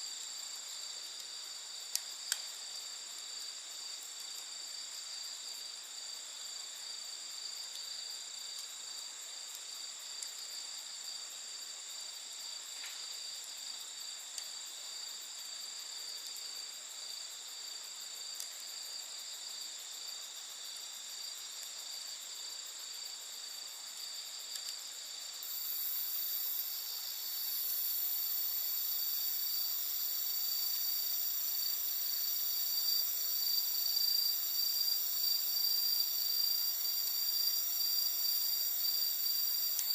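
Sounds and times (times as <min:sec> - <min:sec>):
campfire crackles: 0:00.1 - 0:19.8, 0:21.5 - 0:27.6, 0:39.0 - 0:39.9
insects chirring: 0:00.1 - 0:39.9.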